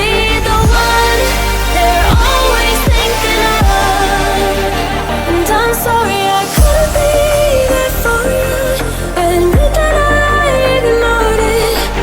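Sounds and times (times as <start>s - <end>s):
pop song with sung melody: 0.0s - 12.0s.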